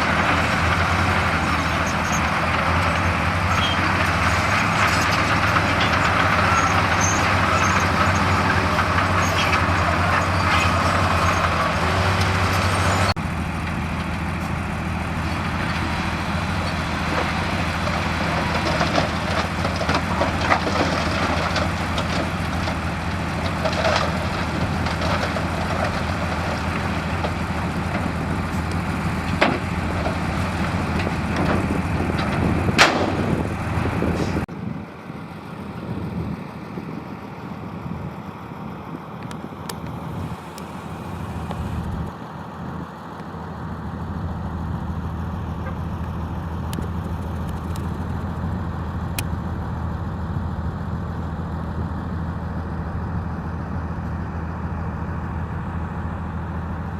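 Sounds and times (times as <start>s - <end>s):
diesel earthmoving machinery running: 0.0s - 56.9s
knocks and clatter: 16.6s - 33.7s.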